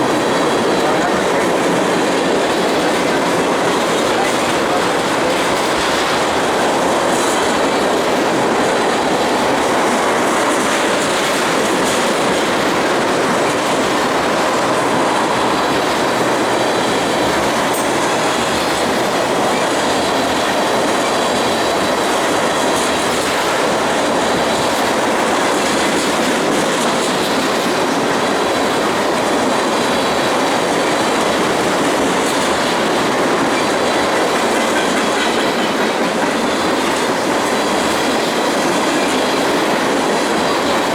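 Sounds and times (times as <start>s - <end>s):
train wheels clattering on rail joints: 0.0s - 40.9s.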